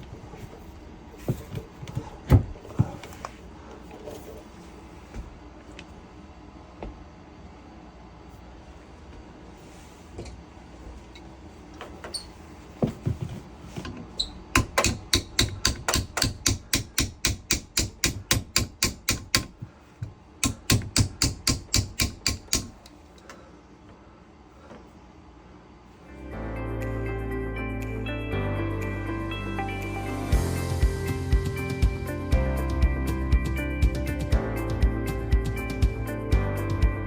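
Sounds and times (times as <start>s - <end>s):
hammer striking: 14.6s - 19.6s, 20.4s - 22.9s.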